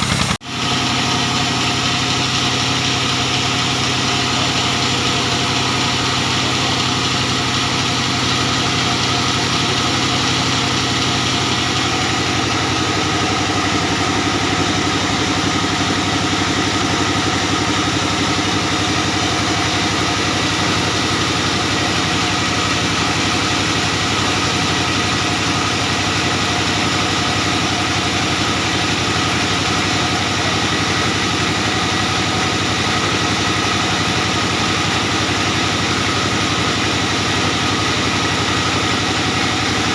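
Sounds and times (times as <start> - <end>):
diesel engine running sawmill: 0.0 - 39.9.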